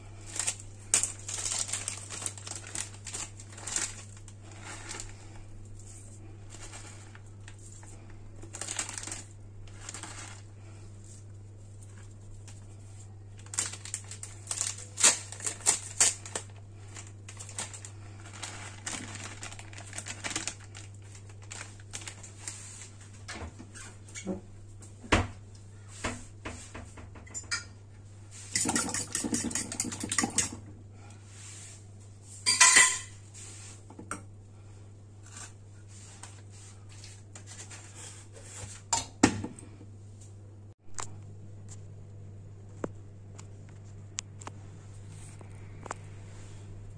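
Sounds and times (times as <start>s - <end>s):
steady low hum: 0.0s - 46.9s
utensil scraping metal bowl: 28.5s - 30.6s.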